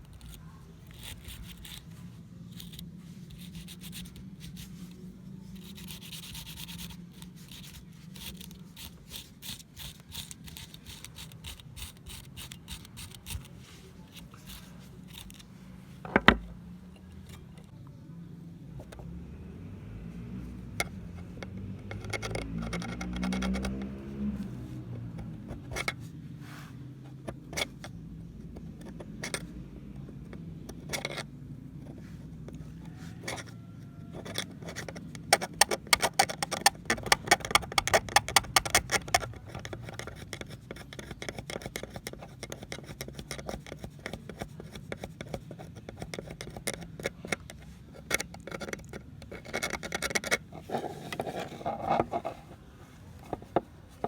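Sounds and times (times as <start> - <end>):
metal scraping on pliers: 0.0 - 4.8, 5.5 - 17.7, 31.9 - 52.6.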